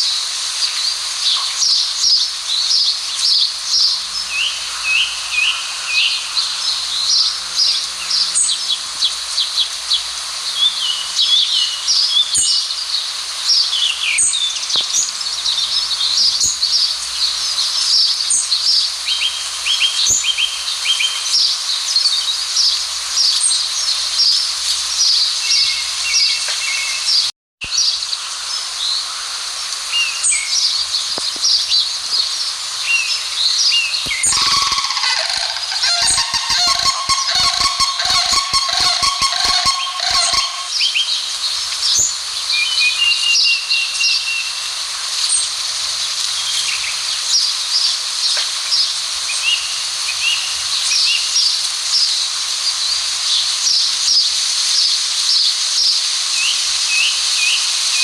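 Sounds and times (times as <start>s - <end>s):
steady hiss: 27.7s - 39.5s
birds chirping and twittering: 33.0s - 40.8s.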